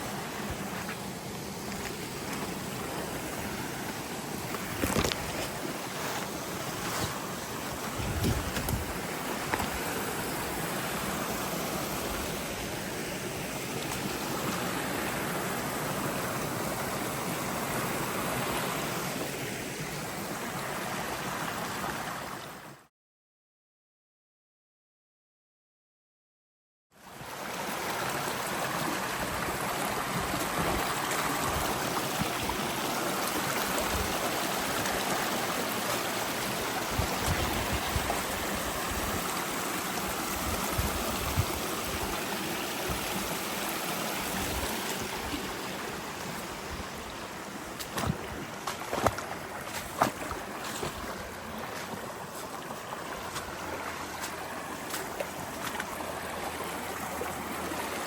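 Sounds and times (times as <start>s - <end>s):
creek water rushing: 0.0s - 22.8s, 27.0s - 58.0s.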